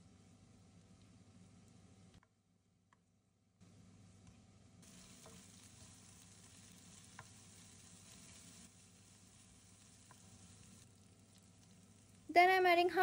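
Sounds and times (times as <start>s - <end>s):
onions sizzling in oil: 4.8s - 13.0s
spatula tapping pan: 5.1s - 5.5s, 7.0s - 7.4s.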